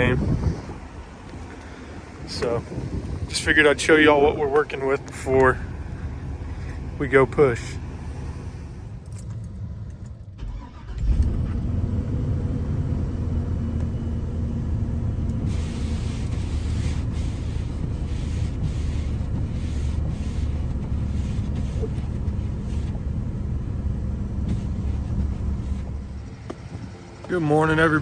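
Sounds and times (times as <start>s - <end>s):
truck engine rumbling: 0.0s - 28.0s
hiss: 15.5s - 21.9s.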